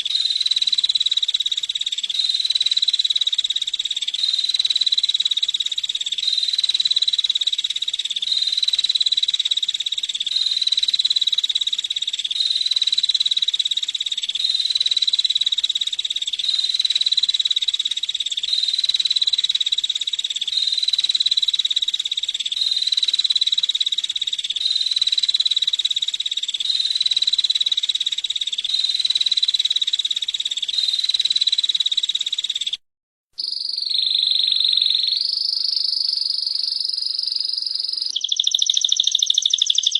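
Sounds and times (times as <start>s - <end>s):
bird buzzy trill: 33.4s - 39.9s.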